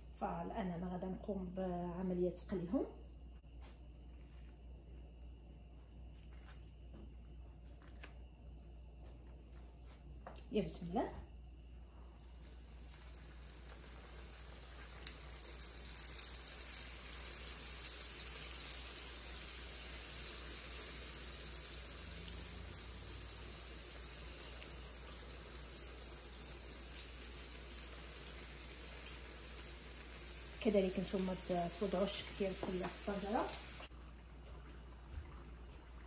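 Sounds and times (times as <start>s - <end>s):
food sizzling in hot oil: 12.2s - 36.0s.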